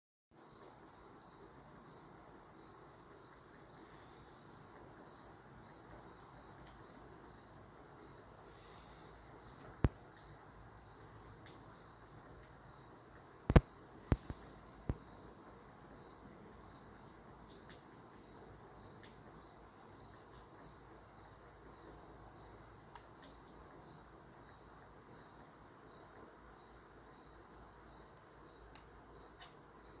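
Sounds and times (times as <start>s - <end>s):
insects trilling: 0.4s - 30.0s
woodpecker tapping on branch: 13.5s - 15.0s.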